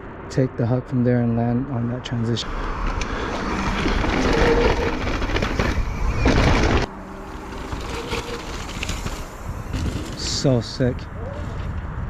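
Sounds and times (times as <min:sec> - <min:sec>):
low rumble: 0:00.0 - 0:12.0
bike tyres skidding on dirt: 0:02.5 - 0:11.9.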